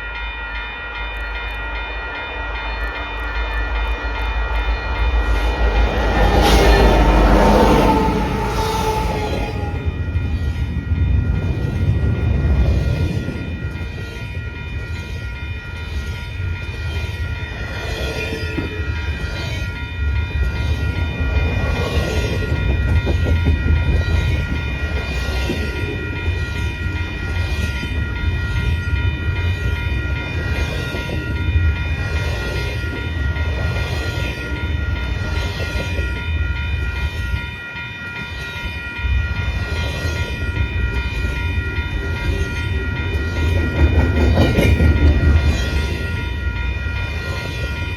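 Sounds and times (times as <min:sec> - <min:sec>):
low train rumble: 0:00.0 - 0:47.9
train wheels clacking on rail joints: 0:42.0 - 0:46.4.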